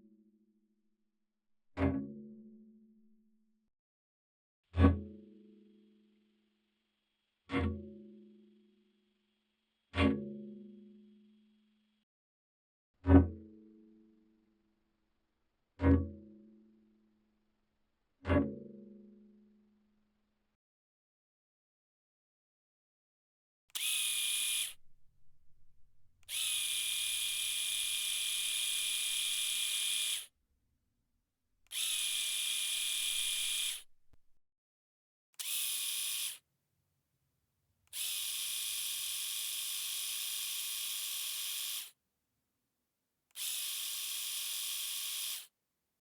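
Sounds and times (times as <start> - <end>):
electric shaver buzzing: 23.8 - 24.8, 26.3 - 30.3, 31.7 - 33.9, 35.4 - 36.4, 38.0 - 41.9, 43.4 - 45.5.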